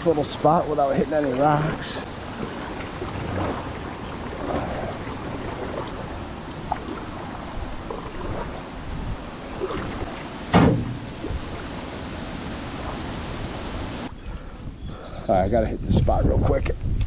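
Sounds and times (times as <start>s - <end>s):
water rushing and splashing: 0.0s - 14.4s
loud knock on canoe hull: 10.5s - 11.1s.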